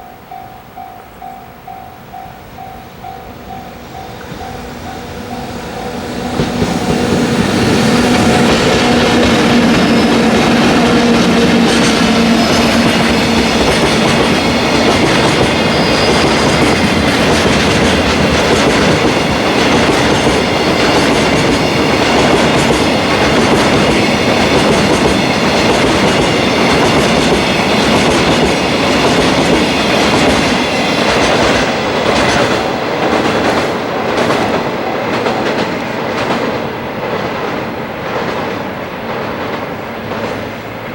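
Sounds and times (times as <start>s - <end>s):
train wheels on rails: 0.0s - 40.9s
wagons clattering clickety-clack: 8.4s - 38.5s.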